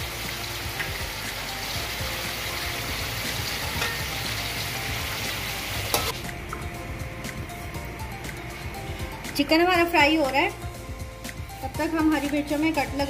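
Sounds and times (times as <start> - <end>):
chicken sizzling in hot oil: 0.0 - 6.4.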